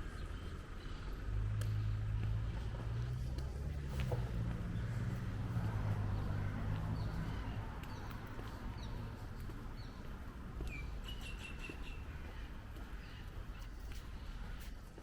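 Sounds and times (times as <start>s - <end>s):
vehicle engine humming: 0.0s - 11.0s
birds chirping: 4.2s - 14.7s.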